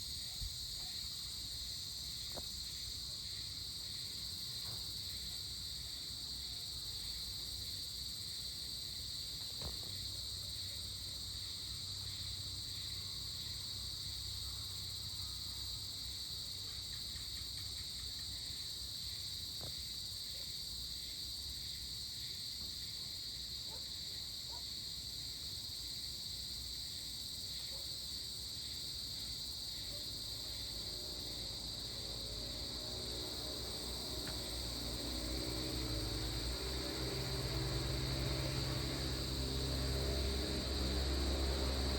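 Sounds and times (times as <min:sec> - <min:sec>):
crickets trilling: 0:00.0 - 0:41.9.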